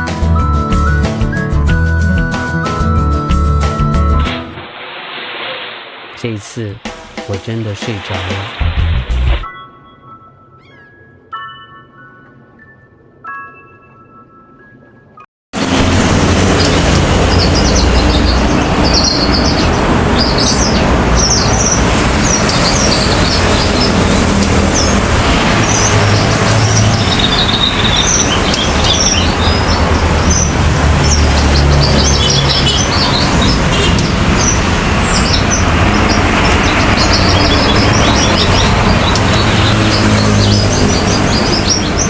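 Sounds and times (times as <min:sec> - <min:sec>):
road traffic and engines: 0:00.0 - 0:09.4, 0:14.8 - 0:42.0
steady rushing noise: 0:04.2 - 0:09.5, 0:15.6 - 0:42.0
bird chirping rapidly: 0:16.6 - 0:42.0.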